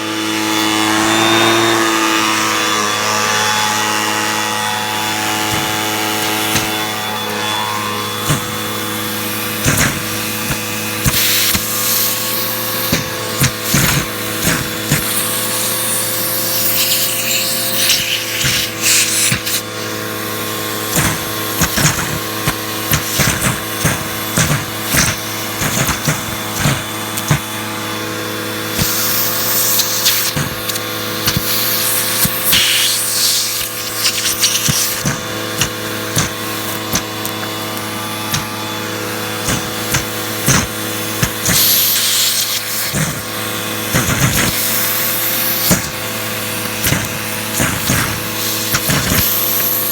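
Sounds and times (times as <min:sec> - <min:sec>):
vacuum cleaner motor hum: 0:00.0 - 0:49.9
rushing hiss: 0:28.7 - 0:35.1, 0:39.4 - 0:43.2.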